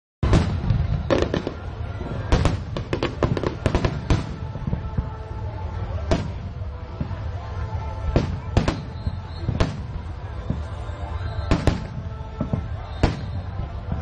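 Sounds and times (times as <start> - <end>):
fireworks bangs: 0.2 - 14.0.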